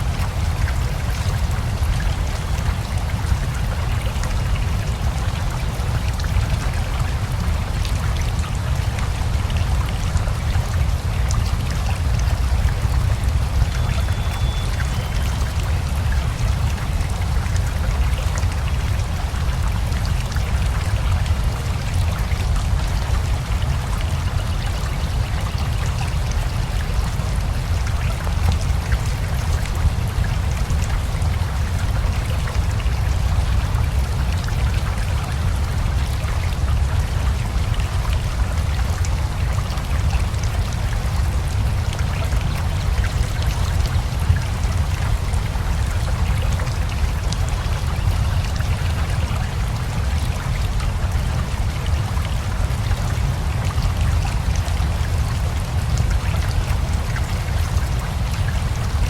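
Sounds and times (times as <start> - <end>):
rushing river: 0.0 - 59.0
steady rain: 0.0 - 59.0.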